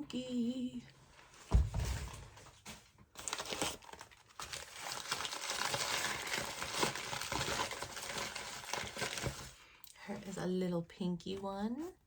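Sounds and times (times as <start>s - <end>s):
packing wrap crinkling: 2.0s - 10.4s.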